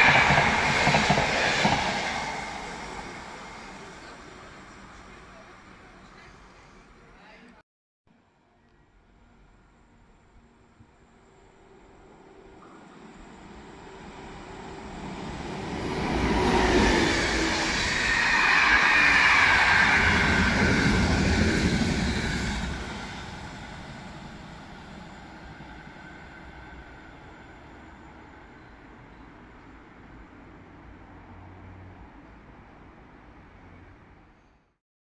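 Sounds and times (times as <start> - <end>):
passenger train passing: 0.0 - 7.2, 8.5 - 34.5
wheels singing on rails: 9.1 - 30.2.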